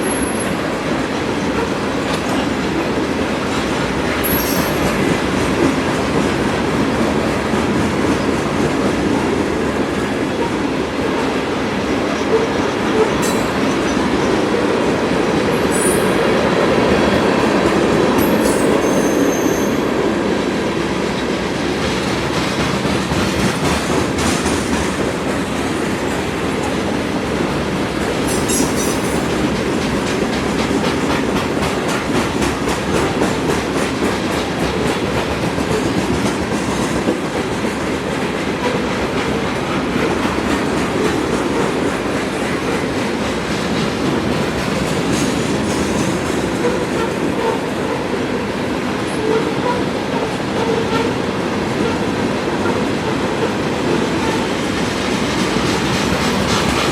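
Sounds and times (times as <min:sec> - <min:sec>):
train wheels clacking over rail joints: 0:00.0 - 0:14.6, 0:21.1 - 0:56.9
high-pitched wheel squeals: 0:18.5 - 0:19.9.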